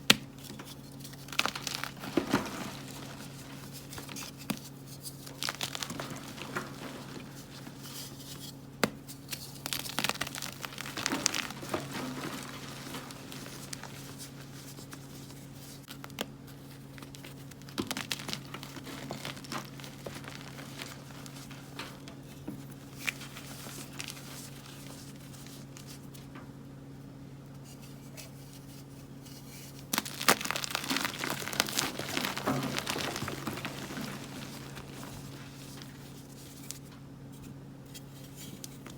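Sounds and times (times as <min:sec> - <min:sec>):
chalk crumbling and crunching: 0:00.4 - 0:26.1, 0:27.7 - 0:36.8.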